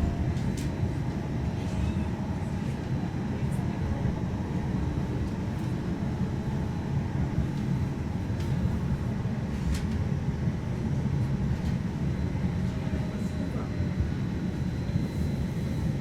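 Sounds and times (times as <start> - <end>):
streetcar rumbling on rails: 0.0 - 16.0.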